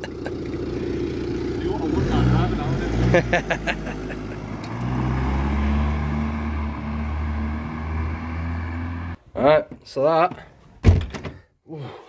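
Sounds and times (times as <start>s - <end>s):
car engine humming: 0.0s - 9.2s.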